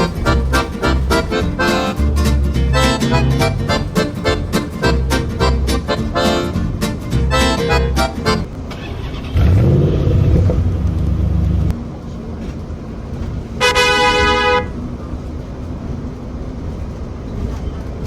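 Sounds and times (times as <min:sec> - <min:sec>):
accordion music: 0:00.0 - 0:08.5
vehicle engine accelerating: 0:00.0 - 0:11.7
vehicle horn toot: 0:13.6 - 0:14.8.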